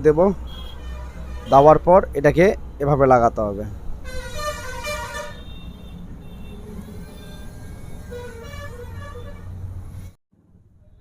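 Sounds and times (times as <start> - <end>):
low hum of traffic: 0.0 - 11.0
vehicle horns tooting: 0.4 - 2.0, 4.0 - 10.1.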